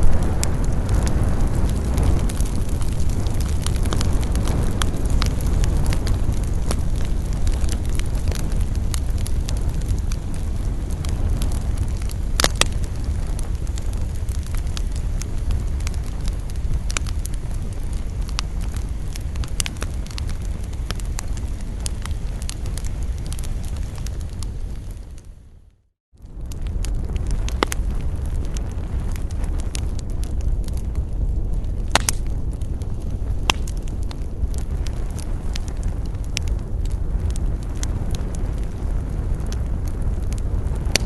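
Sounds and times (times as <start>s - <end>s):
campfire flames rushing: 0.0s - 41.0s
wood crackling and popping: 0.0s - 41.0s.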